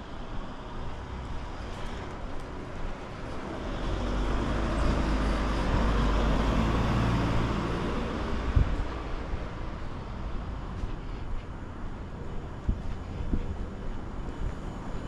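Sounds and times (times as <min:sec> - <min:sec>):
motor vehicle passing: 0:03.3 - 0:09.4.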